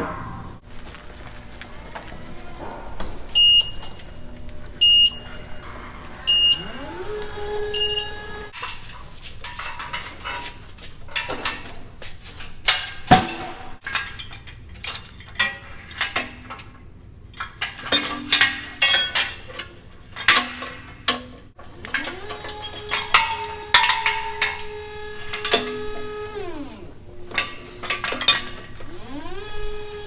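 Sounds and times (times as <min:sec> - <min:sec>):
metal objects clanking and rattling: 0:00.0 - 0:29.6
motor whine: 0:00.6 - 0:08.6, 0:21.6 - 0:30.0.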